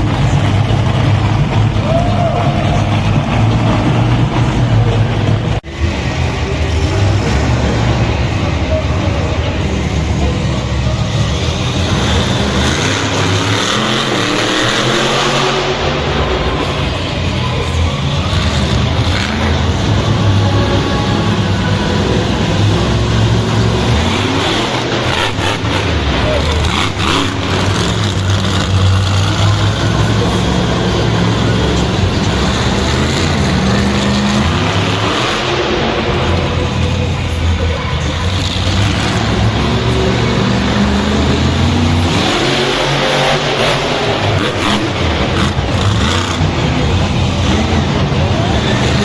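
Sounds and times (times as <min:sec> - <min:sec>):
monster truck engine rumbling: 0:00.0 - 0:49.0.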